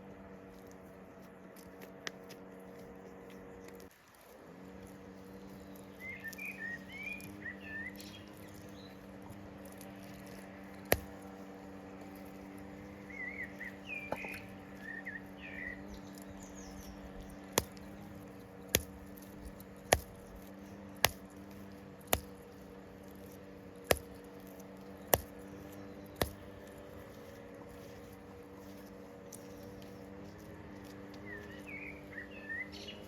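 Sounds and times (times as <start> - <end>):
faint steady hum: 0.0 - 33.0
bird chirping: 5.0 - 21.7, 24.2 - 33.0.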